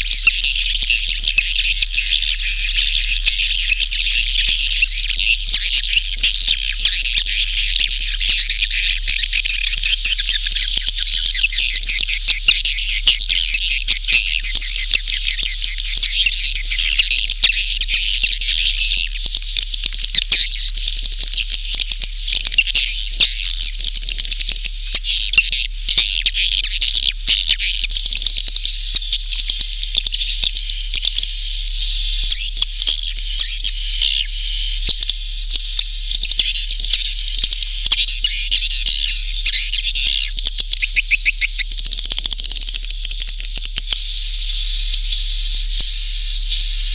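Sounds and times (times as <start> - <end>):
high-pitched bird twittering: 0.0 - 19.3, 20.1 - 20.8, 22.5 - 23.8, 24.9 - 46.9
sharp bird clicks: 6.8 - 17.7, 27.0 - 46.9.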